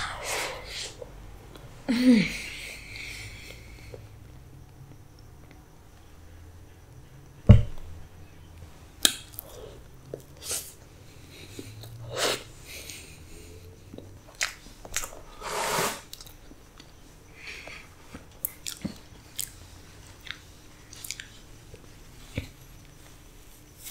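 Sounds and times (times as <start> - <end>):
chewing cake mouth sounds: 18.4 - 19.6, 20.2 - 22.6.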